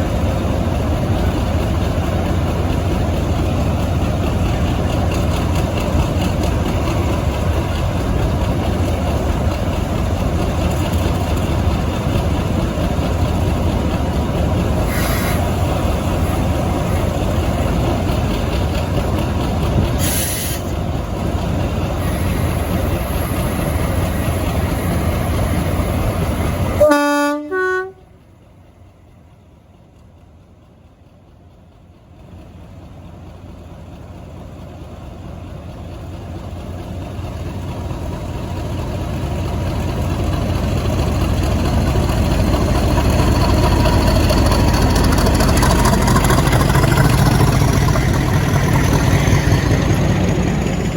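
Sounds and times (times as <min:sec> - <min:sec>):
diesel locomotive rumbling: 0:00.0 - 0:50.9
two-tone train horn: 0:26.8 - 0:28.1.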